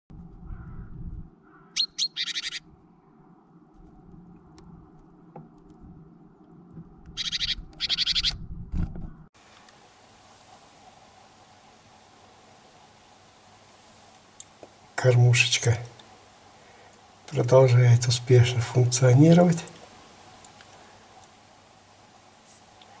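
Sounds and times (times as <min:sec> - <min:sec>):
low rumble: 0:00.1 - 0:01.3
songbirds calling: 0:00.5 - 0:02.7, 0:07.2 - 0:08.4
faint steady hiss: 0:09.4 - 0:23.0.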